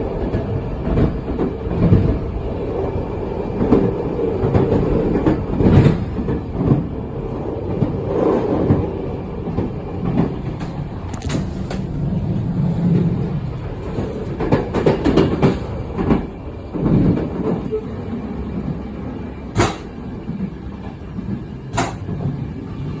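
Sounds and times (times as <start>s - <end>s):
train rumbling: 0.0s - 23.0s
sharp knocks: 19.6s - 20.0s, 21.7s - 22.1s.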